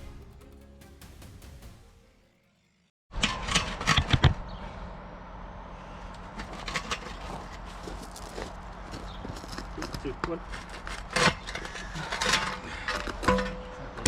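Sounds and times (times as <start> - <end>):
background music: 0.0 - 2.8
loud metal clanks and knocks: 11.0 - 14.0.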